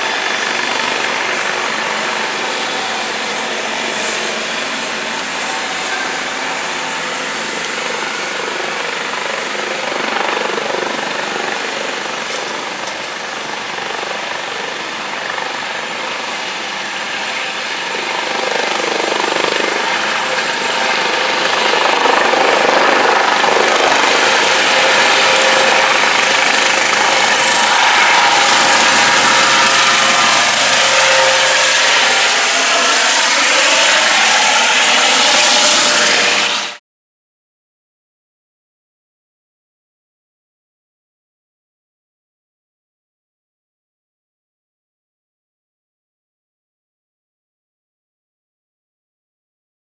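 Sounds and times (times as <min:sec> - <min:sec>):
helicopter rotor and turbine: 0:00.0 - 0:36.8.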